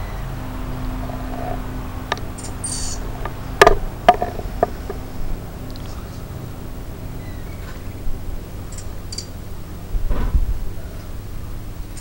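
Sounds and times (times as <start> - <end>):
steady low hum: 0.0 - 12.0
sharp knocks: 3.2 - 5.0.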